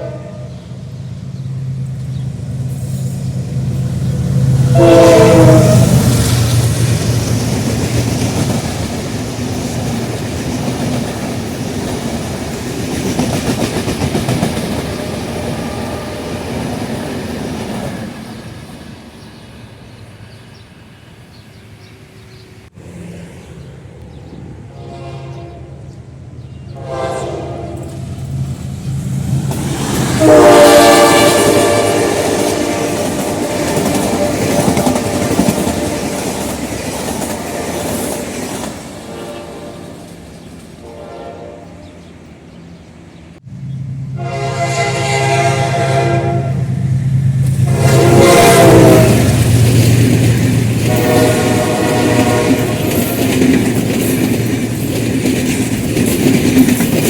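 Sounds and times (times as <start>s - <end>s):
locomotive horn: 0.0s - 0.6s, 4.5s - 6.5s, 24.6s - 25.9s, 26.7s - 28.1s, 30.1s - 36.2s, 39.0s - 40.2s, 40.8s - 42.0s, 44.1s - 46.8s, 47.4s - 49.5s, 50.8s - 53.2s
train wheels on rails: 0.6s - 24.7s, 25.8s - 41.0s, 41.8s - 57.0s.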